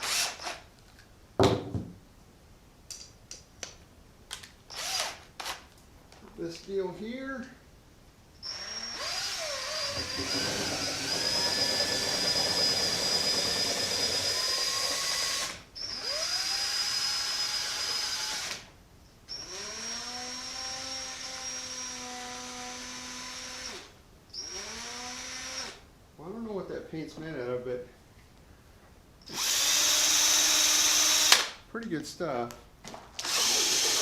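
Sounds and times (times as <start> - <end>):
power drill stirring paint: 0.0 - 0.6, 4.7 - 5.6, 8.4 - 18.7, 19.3 - 25.8, 29.3 - 31.5, 33.2 - 34.0.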